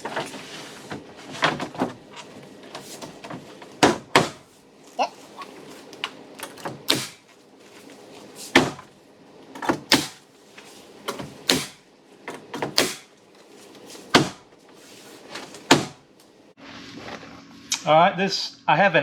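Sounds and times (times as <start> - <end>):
sharp knocks on boards: 3.2 - 4.5, 6.6 - 7.3, 8.5 - 8.9, 9.6 - 10.2, 11.1 - 13.1, 14.1 - 14.5, 15.6 - 16.0.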